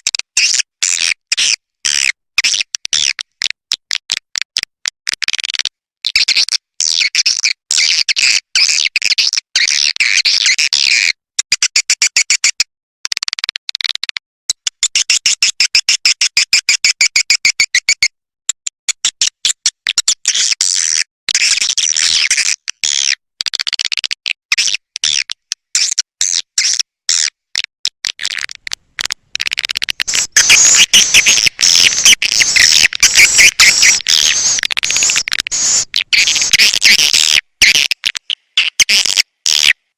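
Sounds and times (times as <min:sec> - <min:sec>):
swiftlets twittering: 0:29.9 - 0:37.3.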